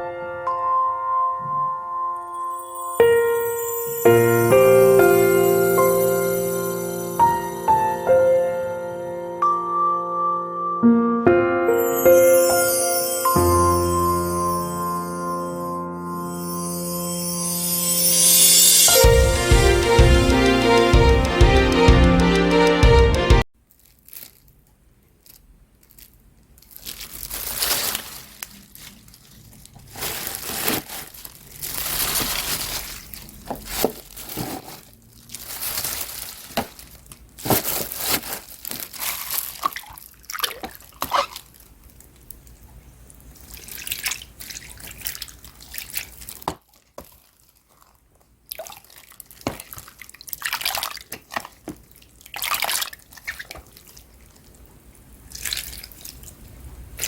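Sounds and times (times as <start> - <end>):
water splashing in a sink: 39.4 - 41.4, 43.4 - 47.2, 48.5 - 54.7, 55.3 - 57.0.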